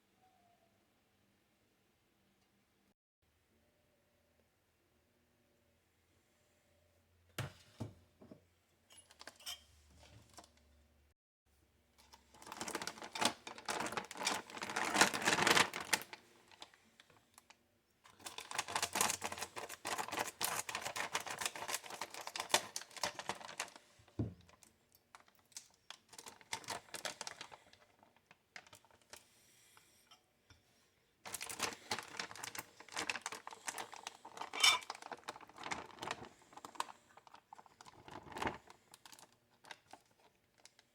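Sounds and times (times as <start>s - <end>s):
plastic packaging crackling: 12.0s - 17.5s, 18.1s - 29.2s, 31.3s - 40.9s.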